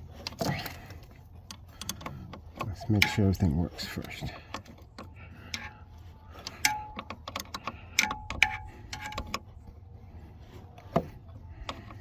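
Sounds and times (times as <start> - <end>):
wrenches clicking on metal: 1.4 - 5.7.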